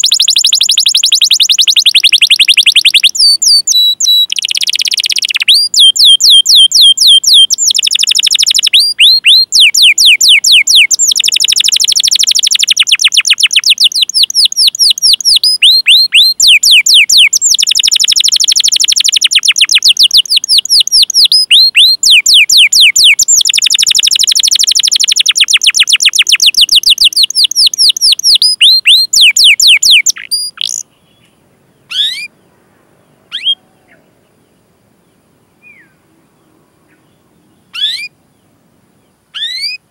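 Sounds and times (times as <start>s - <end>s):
canary singing: 0.0s - 39.8s.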